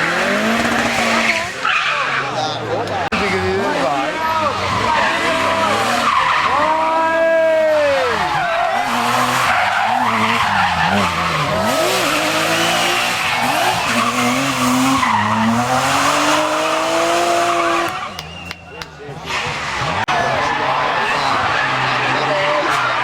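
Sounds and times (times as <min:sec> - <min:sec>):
car engine revving: 0:00.0 - 0:23.0
tyres squealing: 0:08.0 - 0:23.0.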